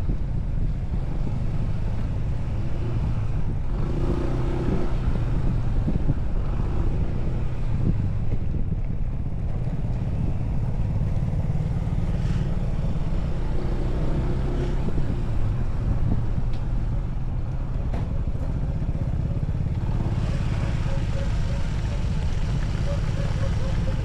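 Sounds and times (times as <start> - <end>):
road noise: 0.0 - 24.0
motorcycle engine rumbling: 5.1 - 24.0.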